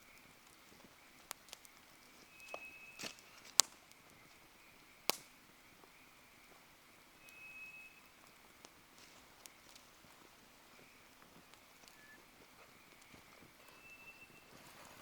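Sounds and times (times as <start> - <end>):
wood fire crackling: 0.0 - 15.0
faint high thin whistle: 2.3 - 3.3, 7.2 - 8.1, 11.9 - 12.2, 13.6 - 14.7.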